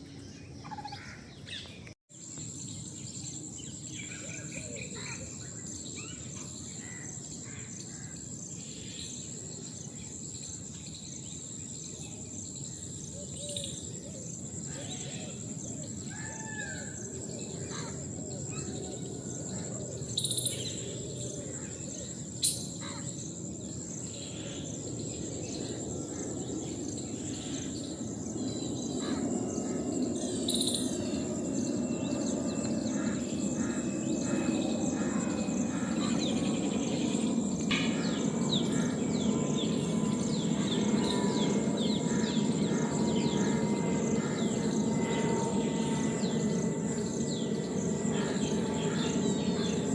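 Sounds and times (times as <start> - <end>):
high-pitched insect drone: 2.2 - 49.9
birds chirping and calling: 12.7 - 49.9.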